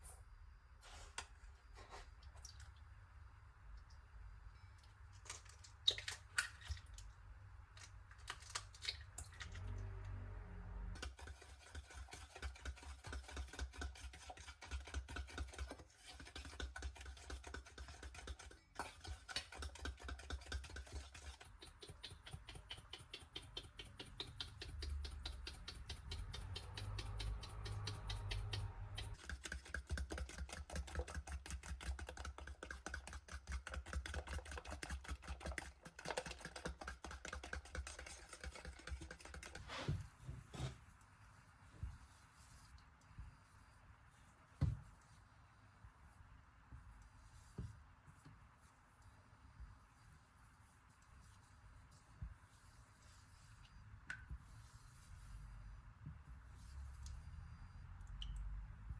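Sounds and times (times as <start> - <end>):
whisk clicking against a bowl: 11.0 - 39.6.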